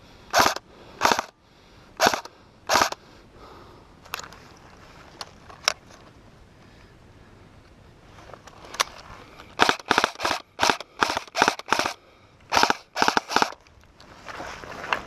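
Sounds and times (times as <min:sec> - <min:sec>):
airsoft gun shots: 0:00.3 - 0:01.3, 0:02.0 - 0:03.0, 0:09.6 - 0:13.6.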